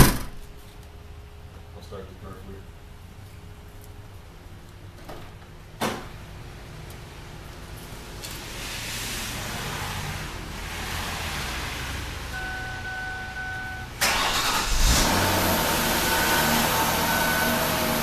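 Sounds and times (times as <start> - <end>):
car warning chime beeping: 12.3 - 14.6, 15.8 - 18.0
car engine cranking and running: 12.3 - 18.0.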